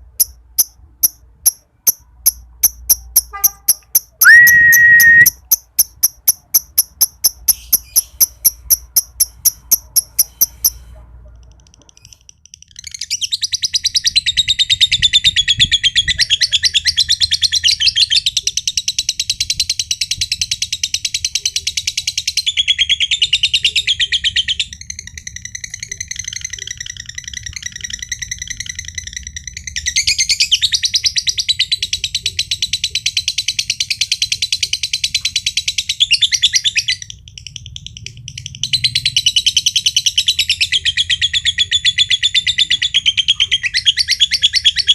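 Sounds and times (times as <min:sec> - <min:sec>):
lovebird chattering trill: 0:00.0 - 0:10.8
lovebird ticking: 0:00.0 - 0:10.8.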